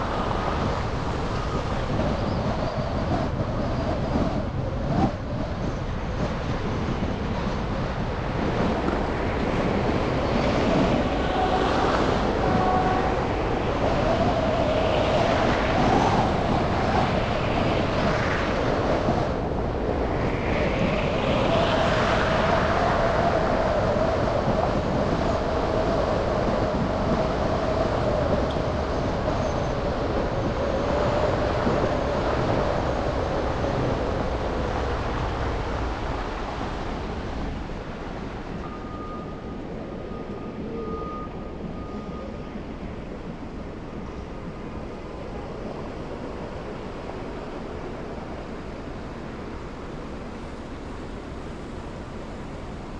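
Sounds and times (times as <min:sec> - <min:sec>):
road noise on wet streets: 0:00.0 - 0:03.4, 0:25.4 - 0:52.9
faint whine: 0:25.3 - 0:52.9.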